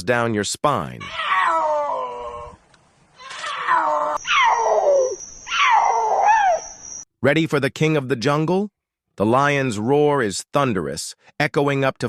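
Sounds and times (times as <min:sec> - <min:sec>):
puma screaming: 0:01.0 - 0:02.6, 0:03.2 - 0:06.7.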